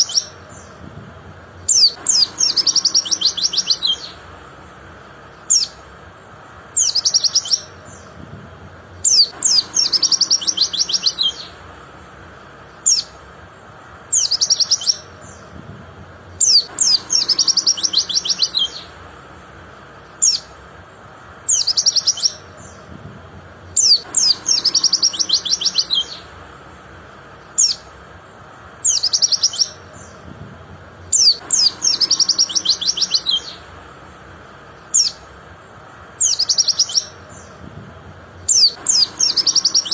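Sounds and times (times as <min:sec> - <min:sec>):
bird singing high trills: 0:00.0 - 0:00.8, 0:01.6 - 0:04.4, 0:05.2 - 0:05.9, 0:06.6 - 0:08.2, 0:09.0 - 0:11.8, 0:12.6 - 0:13.3, 0:13.9 - 0:15.5, 0:16.4 - 0:19.2, 0:20.0 - 0:20.6, 0:21.4 - 0:22.9, 0:23.7 - 0:26.4, 0:27.4 - 0:28.0, 0:28.8 - 0:30.2, 0:31.0 - 0:33.8, 0:34.8 - 0:35.3, 0:36.2 - 0:37.6, 0:38.4 - 0:39.9.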